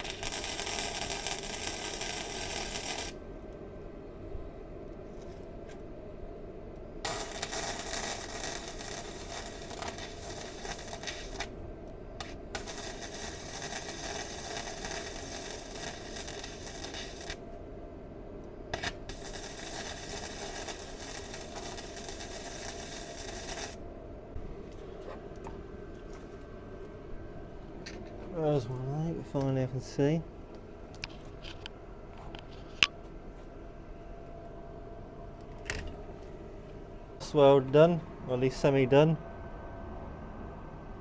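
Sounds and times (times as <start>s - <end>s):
welding arc crackling: 0.0s - 3.2s, 7.0s - 11.6s, 12.2s - 17.4s, 18.7s - 23.8s
steady low hum: 0.0s - 41.0s.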